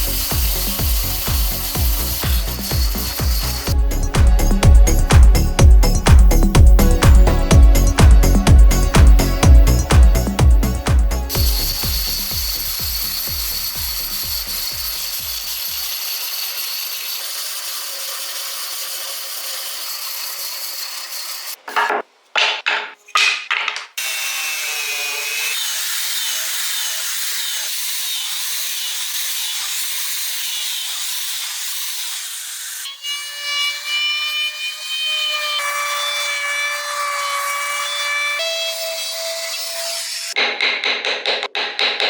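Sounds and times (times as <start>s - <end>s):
tools rasping wood: 0.0s - 8.0s, 8.7s - 21.9s
loud tool strokes: 0.0s - 22.0s, 24.0s - 40.4s.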